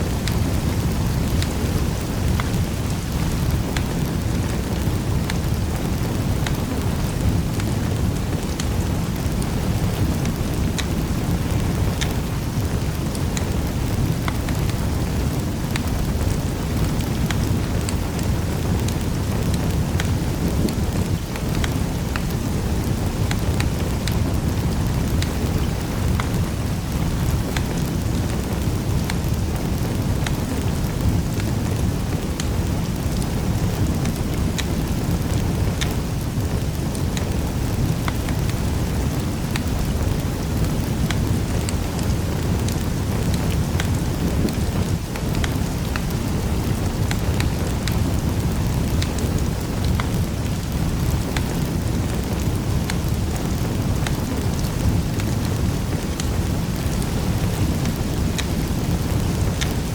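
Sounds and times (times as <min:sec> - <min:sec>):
fire crackles and pops: 0:00.0 - 0:59.9
low rumble of flame: 0:00.0 - 0:59.9.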